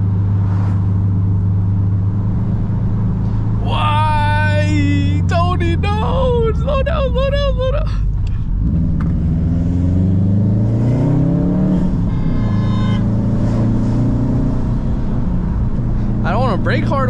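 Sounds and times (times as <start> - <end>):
car engine accelerating: 0.0 - 12.1.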